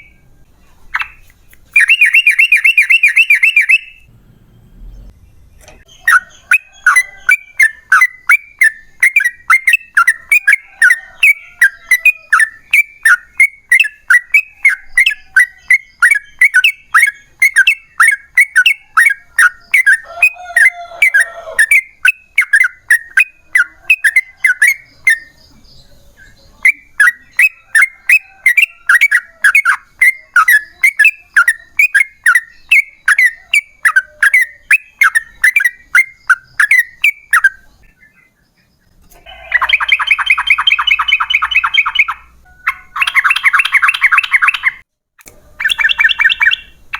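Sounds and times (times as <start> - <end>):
bird chirping rapidly: 0.0 - 46.9.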